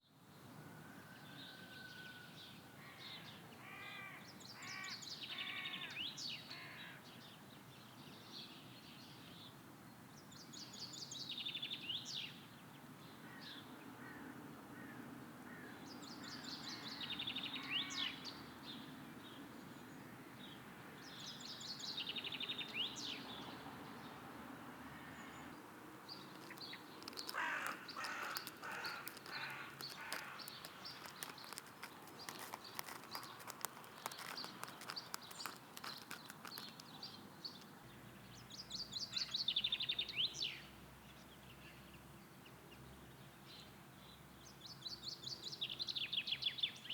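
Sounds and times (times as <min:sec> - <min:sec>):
birds chirping and calling: 0:26.1 - 0:37.7
bird trilling song: 0:26.1 - 0:40.6.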